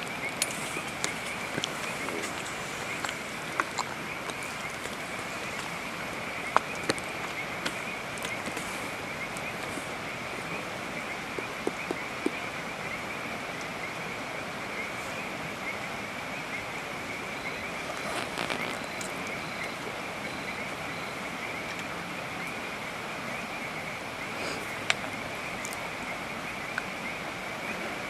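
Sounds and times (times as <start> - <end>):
frogs trilling: 0.0 - 28.0
steady rain: 0.0 - 28.0
faint taps and drips: 0.4 - 9.8, 11.3 - 12.4.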